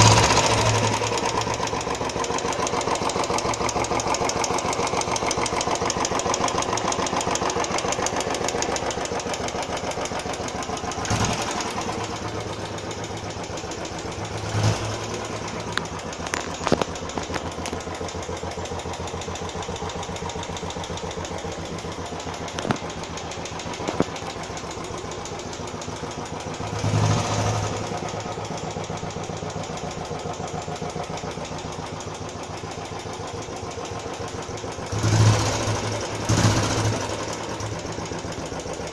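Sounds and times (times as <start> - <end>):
motorcycle engine idling: 0.0 - 38.9
rapid valve tappet ticking: 0.0 - 38.9.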